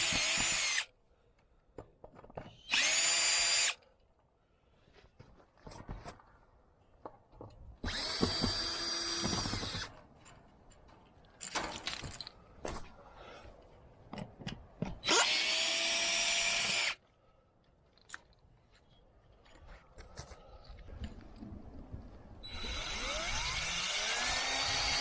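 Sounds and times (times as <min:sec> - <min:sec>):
power drill running: 0:00.0 - 0:00.8, 0:02.6 - 0:03.8, 0:07.9 - 0:09.9, 0:15.0 - 0:17.0, 0:22.4 - 0:25.0.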